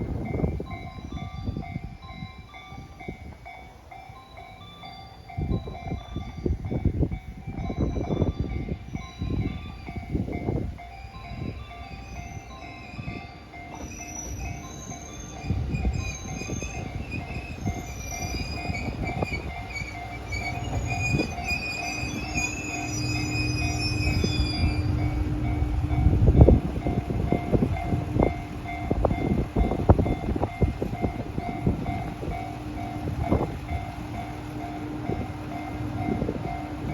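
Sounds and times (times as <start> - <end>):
diesel railcar rumble: 0.0 - 36.9
wheels clacking over rail joints: 11.8 - 36.9.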